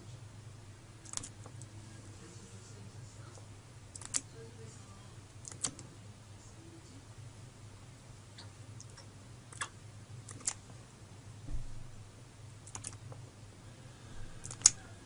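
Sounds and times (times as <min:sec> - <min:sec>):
faint steady hum: 0:00.0 - 0:15.0
dull thump: 0:11.4 - 0:11.9.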